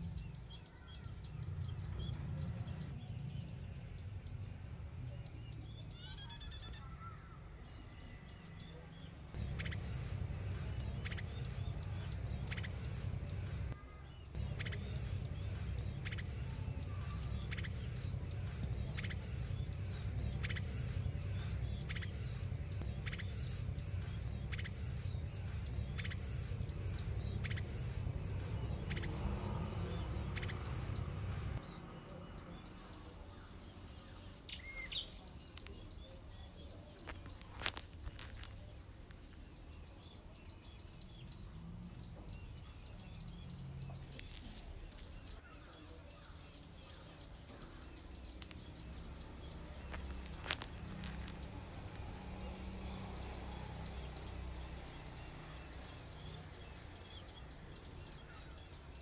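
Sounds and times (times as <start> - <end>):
birds chirping high notes: 0.0 - 59.0
low rumble: 14.4 - 31.8.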